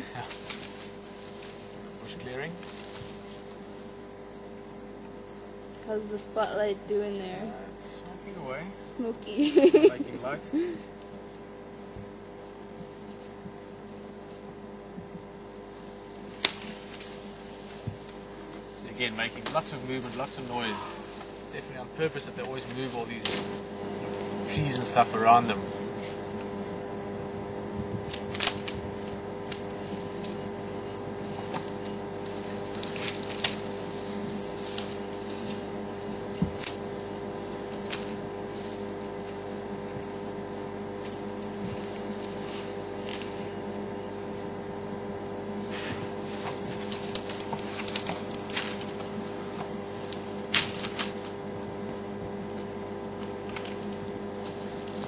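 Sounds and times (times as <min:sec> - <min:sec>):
branches snapping and crackling: 0:00.0 - 0:04.0, 0:16.0 - 0:26.6, 0:27.8 - 0:43.7, 0:45.4 - 0:55.0
steady mechanical hum: 0:00.0 - 0:55.0.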